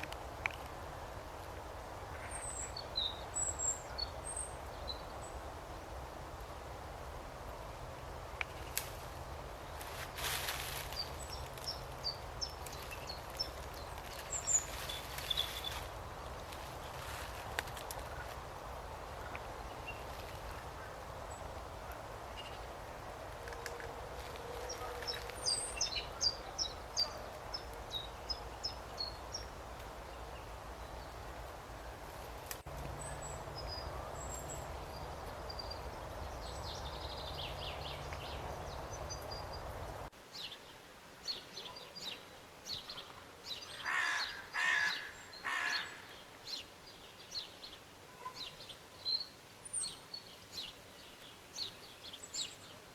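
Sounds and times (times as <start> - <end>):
steady background hiss: 0.0 - 52.9
loud bird calls: 43.7 - 46.2.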